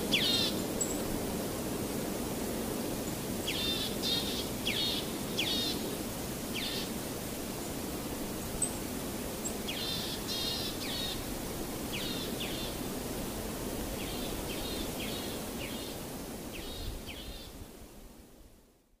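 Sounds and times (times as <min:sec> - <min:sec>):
steady outdoor noise: 0:00.0 - 0:18.8.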